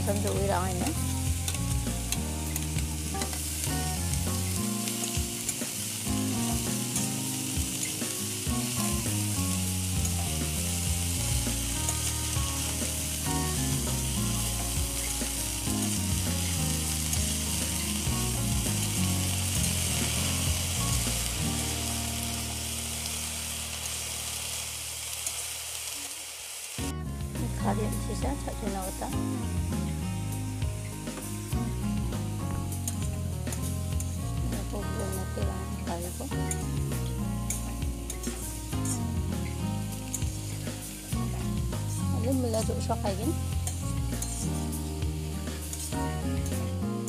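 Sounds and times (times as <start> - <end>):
metal spatula turning food: 0.0 - 5.8
vegetables sizzling in hot oil: 0.0 - 47.0.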